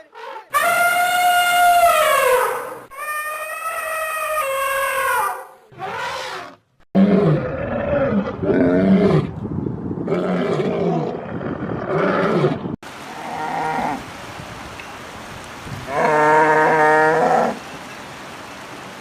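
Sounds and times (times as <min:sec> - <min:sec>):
big cat roaring: 0:05.7 - 0:09.4, 0:10.0 - 0:14.0.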